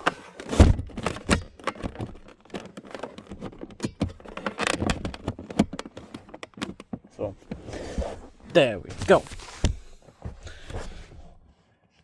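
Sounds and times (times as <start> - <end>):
seat latch clicks and rattles: 0.0 - 7.1
heavy seat thump: 0.5 - 1.4, 7.4 - 11.3.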